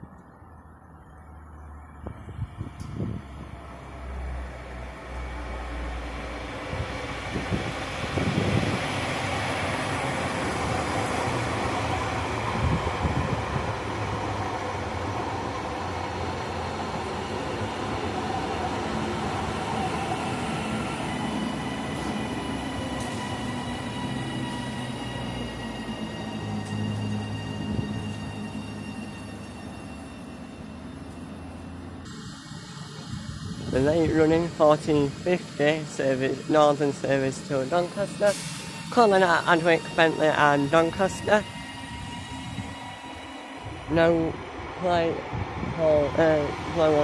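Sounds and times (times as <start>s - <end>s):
train wheels rumbling on rail: 2.1s - 47.0s
steady high whine: 26.4s - 36.1s.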